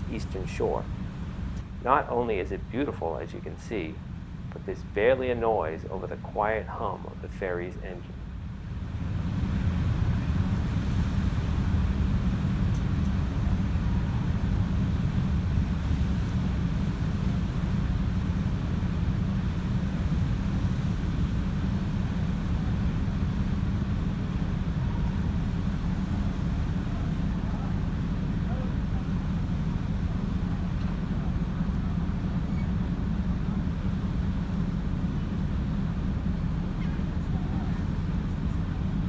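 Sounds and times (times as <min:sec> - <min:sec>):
water noise: 0:00.0 - 0:08.2
ferry engine humming: 0:00.0 - 0:39.0
wind: 0:00.0 - 0:39.0.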